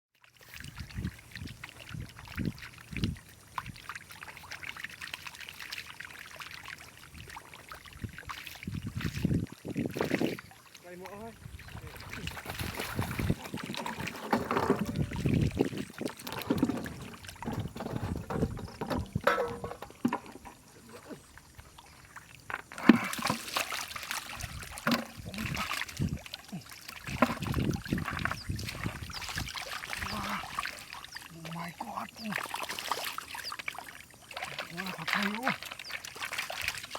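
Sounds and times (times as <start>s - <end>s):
water splashing and trickling: 0.2s - 36.9s
low thumps: 16.4s - 20.6s.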